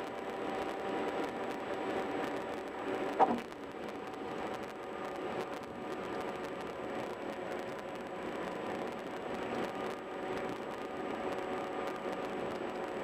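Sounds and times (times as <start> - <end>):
car road and tyre noise: 0.0 - 13.0.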